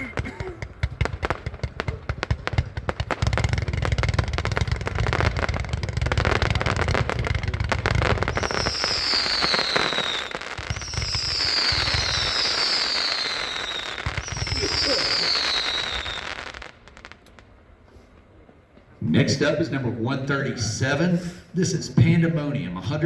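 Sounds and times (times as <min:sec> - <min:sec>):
fireworks shots and crackle: 0:00.0 - 0:17.6
fireworks whistles falling in pitch: 0:07.7 - 0:17.2.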